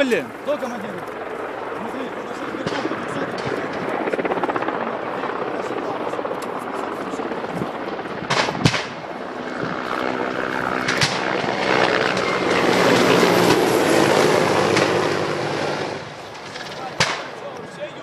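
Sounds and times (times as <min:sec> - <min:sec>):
helicopter rotor and engine: 0:00.0 - 0:18.0
gunfire cracks: 0:17.0 - 0:17.3.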